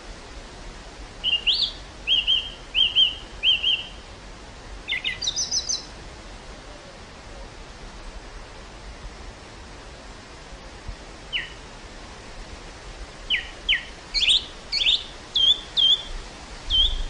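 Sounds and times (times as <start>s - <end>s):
wind hiss: 0.0s - 17.0s
songbird singing: 1.2s - 6.0s, 11.3s - 11.7s, 13.2s - 17.0s.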